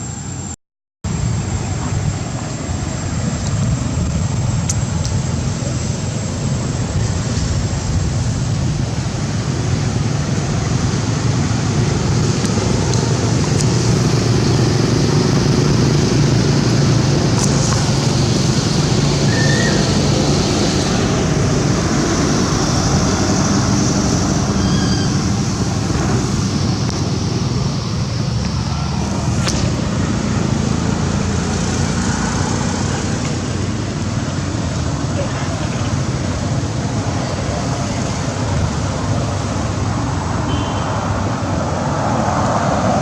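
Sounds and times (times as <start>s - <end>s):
road traffic rumble: 0.0s - 43.0s
faint high chirps: 24.5s - 25.4s.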